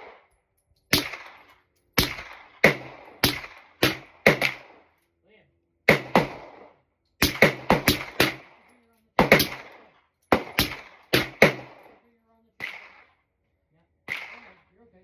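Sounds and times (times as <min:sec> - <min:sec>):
suppressed pistol shots: 0:00.9 - 0:05.0, 0:05.9 - 0:12.0, 0:12.6 - 0:13.2.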